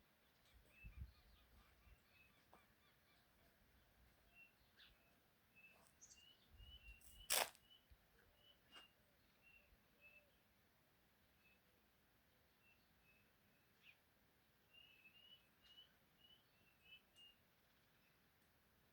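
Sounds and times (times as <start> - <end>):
faint bird chirps: 0.2 - 10.5, 14.7 - 18.2.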